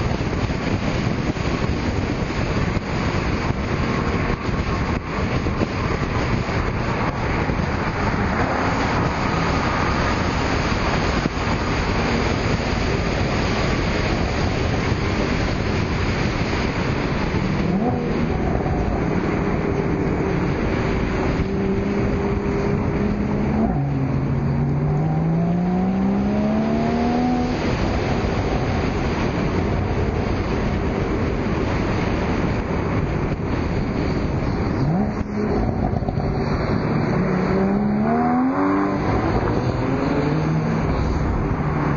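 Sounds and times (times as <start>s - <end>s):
car engines and exhausts: 0.0s - 41.9s
road and wind noise: 0.0s - 41.9s
engine accelerating: 17.2s - 41.9s.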